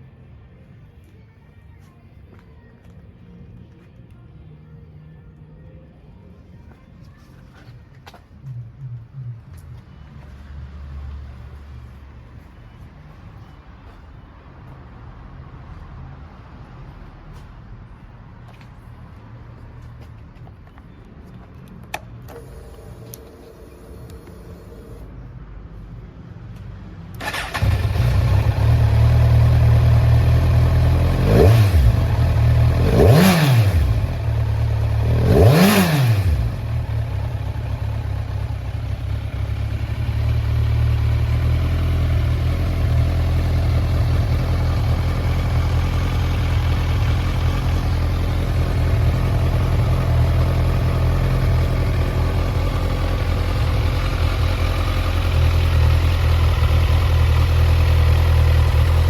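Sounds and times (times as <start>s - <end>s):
motorcycle engine revving and idling: 27.2s - 59.0s.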